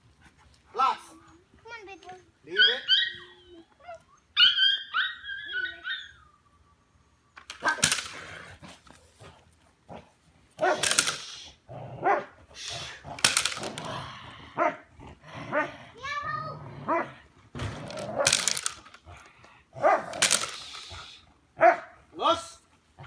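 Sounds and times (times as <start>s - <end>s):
dog whining: 1.9s - 8.2s
dog barking: 10.6s - 10.9s, 12.0s - 12.4s, 14.6s - 14.8s, 16.9s - 17.2s, 19.8s - 20.2s, 21.6s - 22.0s.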